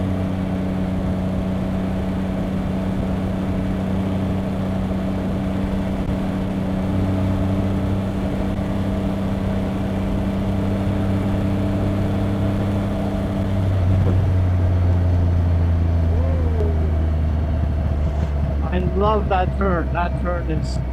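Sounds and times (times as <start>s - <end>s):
motorcycle engine running: 0.0s - 20.9s
riding wind noise: 0.0s - 20.9s.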